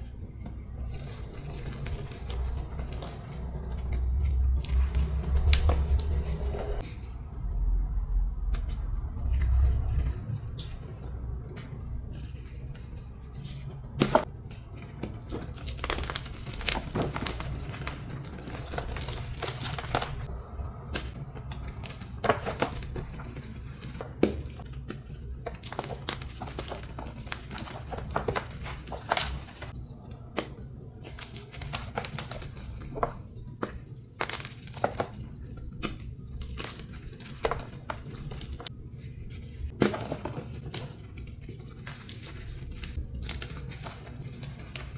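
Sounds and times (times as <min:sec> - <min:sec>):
low steady hum: 0:00.0 - 0:44.9
chalk blocks crunching: 0:08.6 - 0:20.3.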